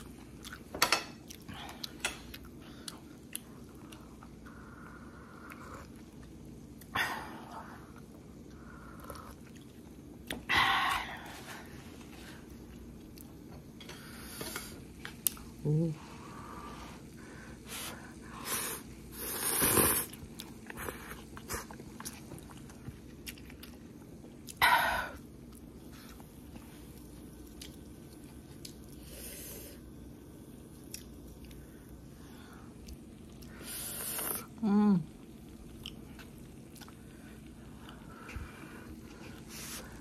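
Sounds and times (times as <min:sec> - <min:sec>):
person chewing food: 0:00.0 - 0:06.9, 0:07.8 - 0:10.5, 0:11.3 - 0:13.8, 0:14.4 - 0:15.6, 0:19.1 - 0:24.6, 0:25.3 - 0:29.0, 0:30.6 - 0:32.1, 0:32.7 - 0:34.6, 0:35.5 - 0:40.0.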